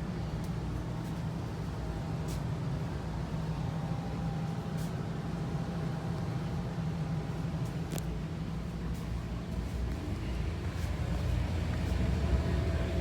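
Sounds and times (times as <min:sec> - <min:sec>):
low mechanical engine hum: 0:00.1 - 0:13.0.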